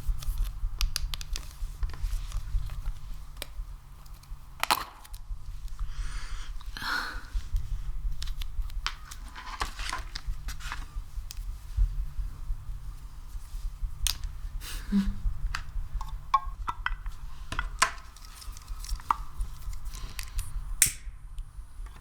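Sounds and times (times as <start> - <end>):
low steady hum: 0.0 - 22.0
sticky material clicks and pops: 0.2 - 5.8.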